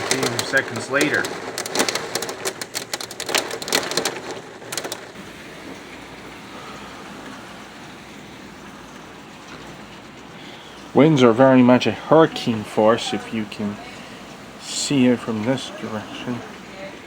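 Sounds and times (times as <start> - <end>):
hailstones clattering on hard surface: 0.0 - 7.8
rain and hail hissing: 0.0 - 17.0.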